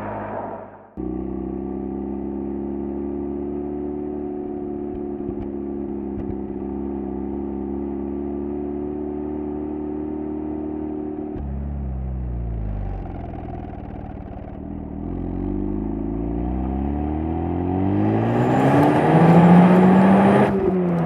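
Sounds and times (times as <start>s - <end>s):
rotary engine exhaust idling steadily: 11.4s - 15.1s.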